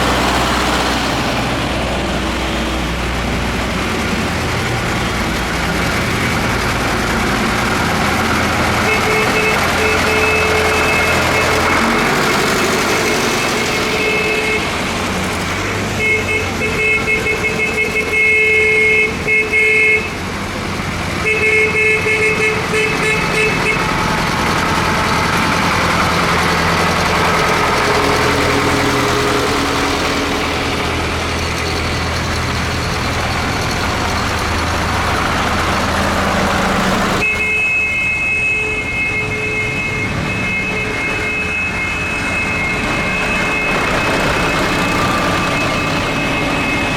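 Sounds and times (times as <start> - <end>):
tractor engines running: 0.0 - 46.9
vehicle horn honking: 8.5 - 12.4, 13.0 - 14.9, 16.0 - 20.2, 21.2 - 24.0, 37.2 - 42.7.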